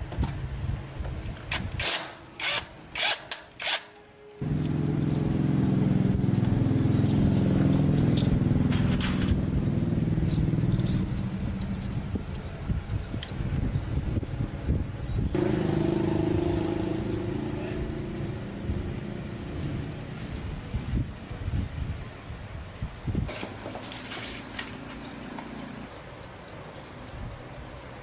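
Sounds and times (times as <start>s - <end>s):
small motorcycle engine running: 4.4s - 11.3s, 15.4s - 19.8s.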